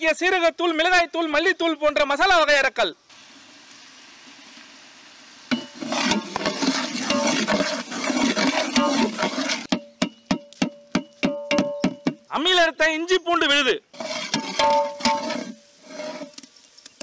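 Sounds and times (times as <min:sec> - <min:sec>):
masala sizzling in pot: 0:03.0 - 0:11.5, 0:13.8 - 0:17.0
metal ladle stirring and scraping: 0:05.5 - 0:12.2, 0:13.9 - 0:16.6
background music with percussion: 0:09.7 - 0:12.3.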